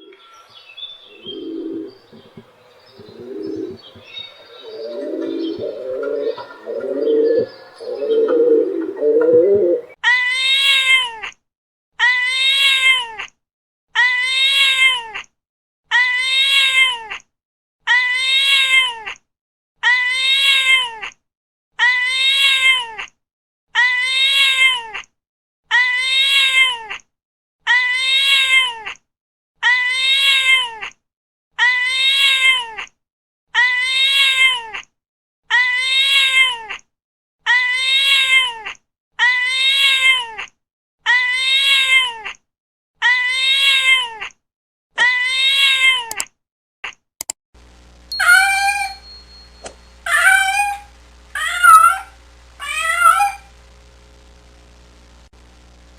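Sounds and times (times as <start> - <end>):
cat meowing: 1.1 - 11.2, 12.0 - 13.3, 14.0 - 15.2, 15.9 - 17.2, 17.9 - 19.2, 19.8 - 21.1, 21.8 - 23.0, 23.8 - 25.0, 25.7 - 27.0, 27.7 - 29.0, 29.6 - 30.9, 31.6 - 32.9, 33.6 - 34.8, 35.5 - 36.8, 37.5 - 40.5, 41.1 - 42.4, 43.0 - 44.3, 45.0 - 46.2, 48.2 - 49.2, 50.1 - 53.5.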